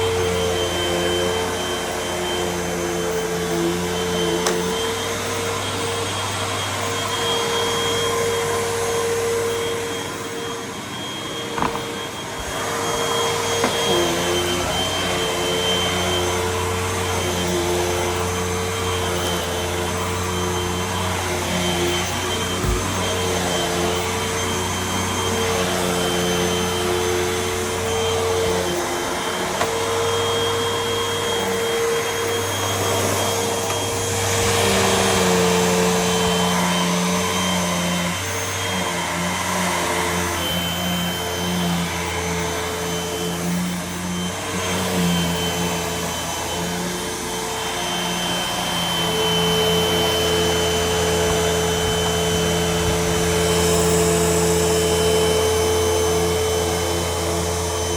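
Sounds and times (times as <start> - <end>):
vacuum cleaner running: 0.0 - 57.9.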